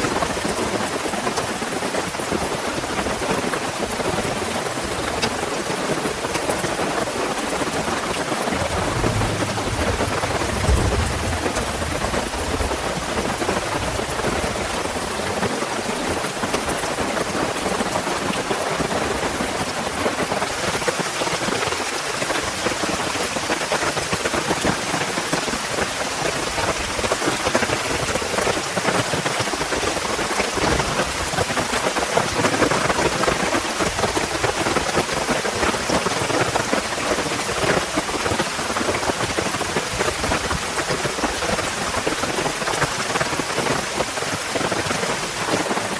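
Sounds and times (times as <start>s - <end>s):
heavy rain falling: 0.0s - 45.9s
low thunder rumble: 8.3s - 16.6s.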